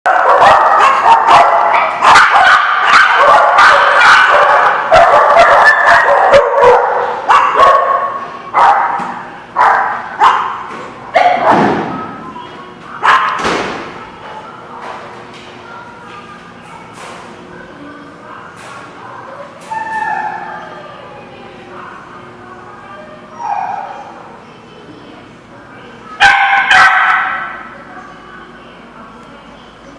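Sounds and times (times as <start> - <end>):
dogs barking: 0.1 - 12.0, 13.0 - 13.5, 18.4 - 20.8, 23.3 - 24.3, 26.1 - 27.7.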